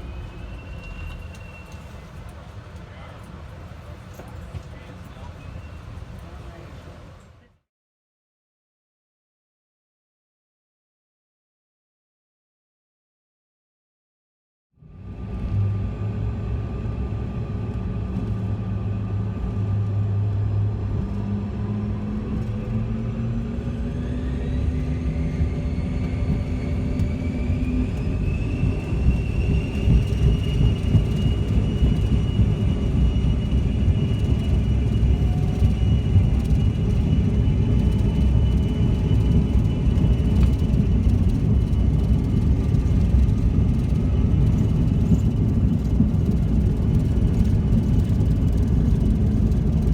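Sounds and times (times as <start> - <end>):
jet engine whine: 0.0 - 7.4, 14.8 - 49.9
takeoff roll rumble: 15.0 - 49.9.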